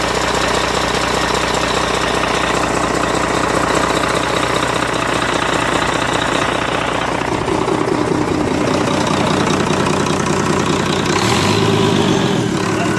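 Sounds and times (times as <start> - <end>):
diesel engine knocking clatter: 0.0 - 12.9.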